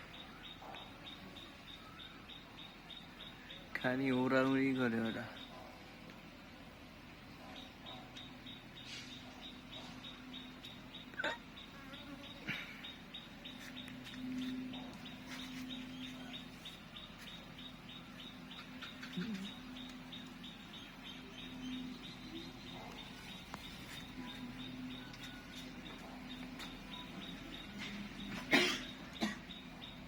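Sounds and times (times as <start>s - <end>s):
honeybees buzzing: 10.3s - 30.0s.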